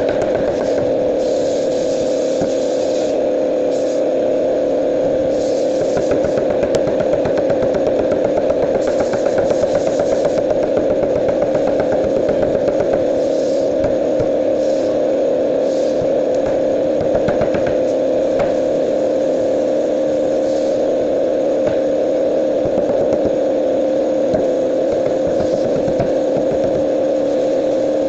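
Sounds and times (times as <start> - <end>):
machine hum: 0.0 - 28.0.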